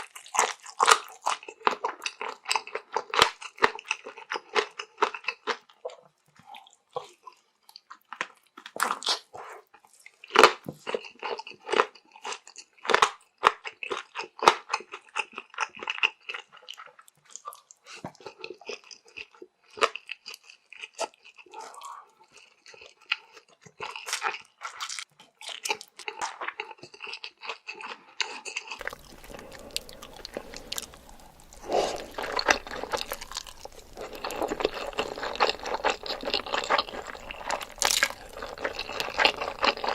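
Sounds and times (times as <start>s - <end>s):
wet chewing and crunching: 0.0s - 39.9s
steady hiss: 28.8s - 35.2s.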